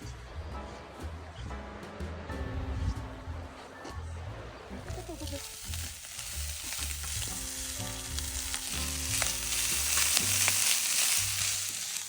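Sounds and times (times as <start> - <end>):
meat sizzling in a pan: 4.9 - 12.0.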